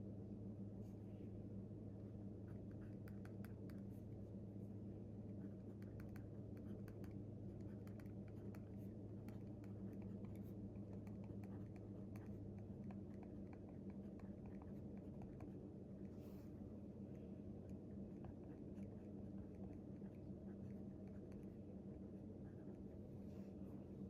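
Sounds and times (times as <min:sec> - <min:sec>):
steady low hum: 0:00.0 - 0:24.0
small clicks and taps at desk: 0:05.8 - 0:08.6.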